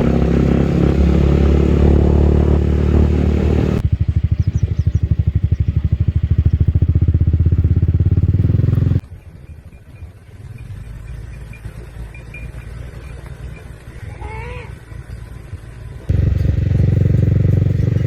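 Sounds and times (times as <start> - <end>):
motorcycle engine puttering: 0.0 - 9.1, 16.1 - 18.0.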